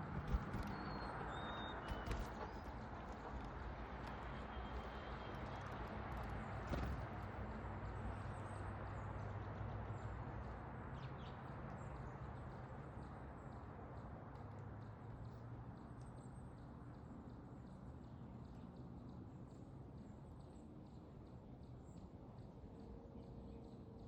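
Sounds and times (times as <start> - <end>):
faint high bird chirps: 0.3 - 2.6.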